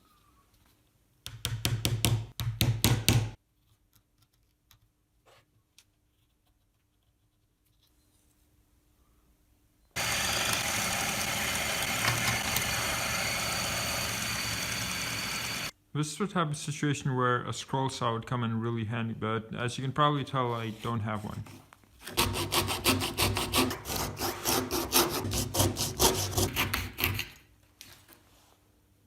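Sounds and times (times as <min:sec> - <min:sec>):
hand saw cutting plywood: 0:10.0 - 0:15.7, 0:22.1 - 0:27.3
power tool running: 0:10.0 - 0:15.7.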